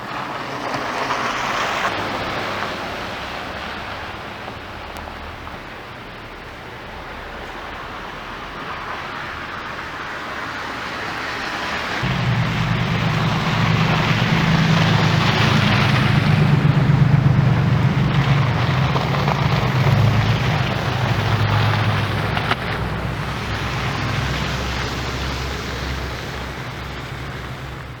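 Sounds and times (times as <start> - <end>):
tyres hissing on snowy road: 0.0 - 28.0
low engine hum: 12.0 - 28.0.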